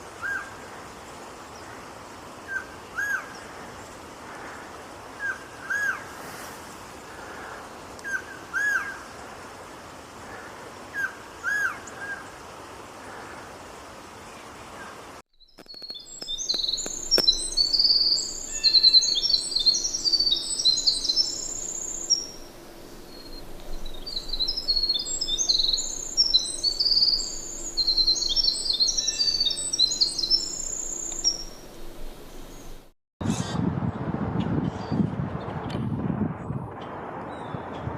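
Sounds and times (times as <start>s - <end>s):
background hiss: 0.0s - 32.9s
high-pitched bird song: 15.4s - 22.4s, 23.1s - 31.6s.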